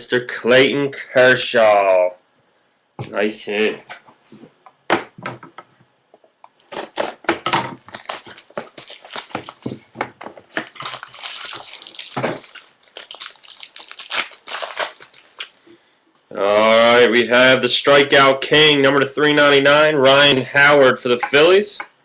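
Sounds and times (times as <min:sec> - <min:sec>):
card packs crinkling: 0:06.6 - 0:07.2, 0:07.8 - 0:15.7.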